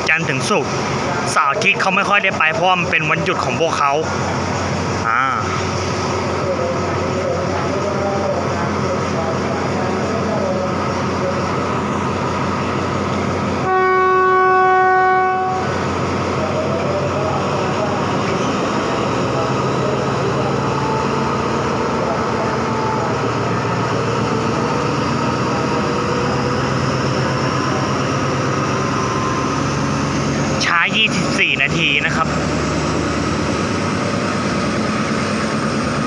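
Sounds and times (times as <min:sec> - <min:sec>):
train running with engine drone: 0:00.0 - 0:36.0
train horn blast: 0:13.6 - 0:15.8.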